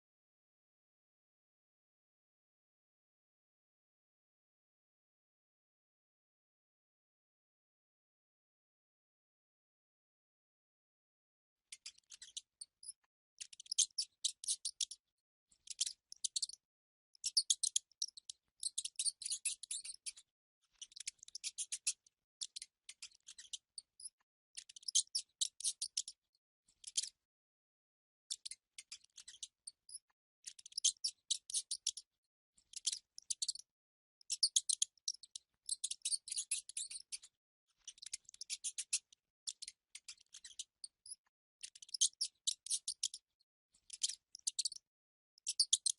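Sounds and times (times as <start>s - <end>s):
mice squeaking: 11.8s - 15.0s, 15.6s - 16.6s, 17.2s - 20.2s, 20.8s - 26.2s, 28.3s - 32.1s, 32.7s - 33.7s, 34.3s - 43.2s, 43.9s - 44.8s, 45.4s - 45.9s.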